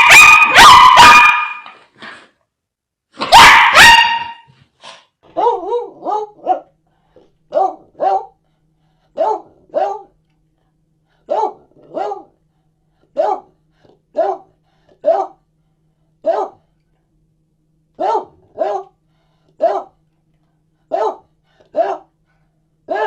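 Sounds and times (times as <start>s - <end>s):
dog barking: 0.0s - 1.8s, 3.2s - 4.5s, 5.3s - 6.7s, 7.5s - 8.4s, 9.2s - 10.1s, 11.3s - 12.3s, 13.2s - 13.5s, 14.1s - 15.4s, 16.2s - 16.6s, 18.0s - 19.0s, 19.6s - 20.0s, 20.9s - 22.1s.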